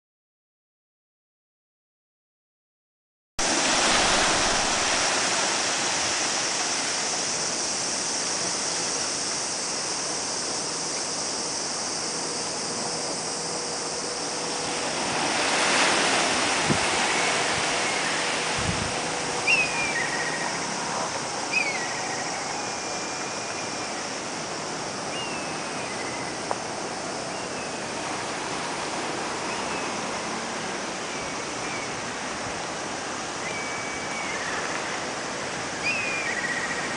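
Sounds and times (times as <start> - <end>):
sea surf breaking: 3.4 - 10.0, 13.3 - 22.4.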